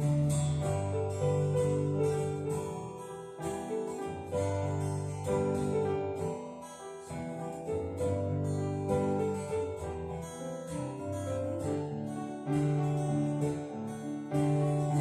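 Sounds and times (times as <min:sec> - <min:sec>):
low held notes: 0:00.0 - 0:15.0
strummed acoustic guitar chords: 0:00.0 - 0:15.0.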